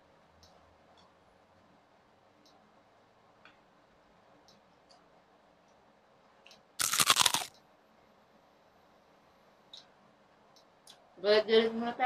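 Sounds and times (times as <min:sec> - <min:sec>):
crunchy chewing of lettuce: 0:06.8 - 0:07.5.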